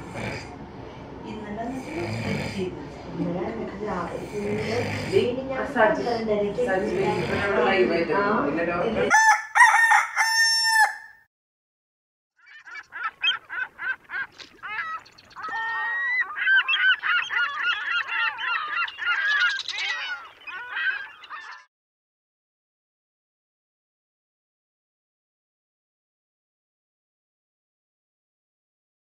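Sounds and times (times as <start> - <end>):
rooster crowing: 9.1 - 11.2
bird chirps and trills: 12.4 - 21.7.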